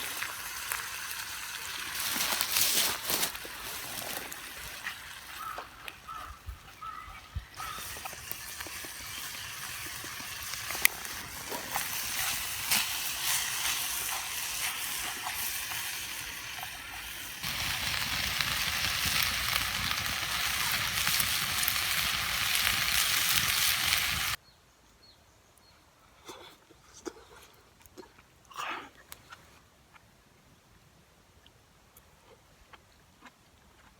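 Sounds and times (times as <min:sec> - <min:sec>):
food sizzling in a pan: 0:00.0 - 0:06.2, 0:06.8 - 0:24.4
small pops and crackles: 0:00.0 - 0:24.4.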